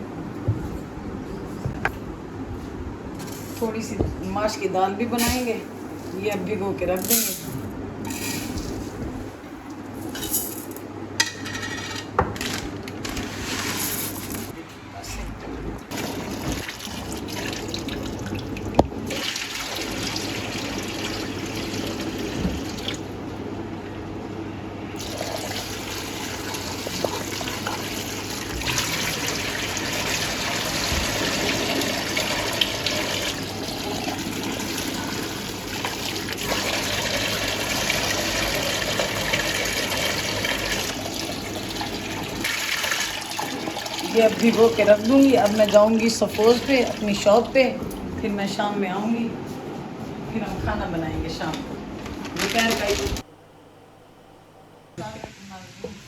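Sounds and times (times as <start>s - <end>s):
tap water running into a bowl: 15.9s - 23.2s, 25.0s - 48.0s.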